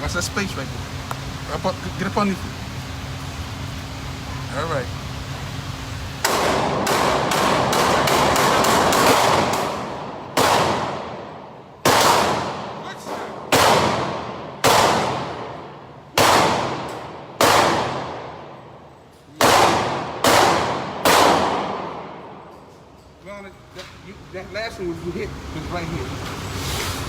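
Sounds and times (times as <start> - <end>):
handgun shots: 6.2 - 11.2, 11.8 - 15.6, 16.2 - 18.4, 19.4 - 22.2.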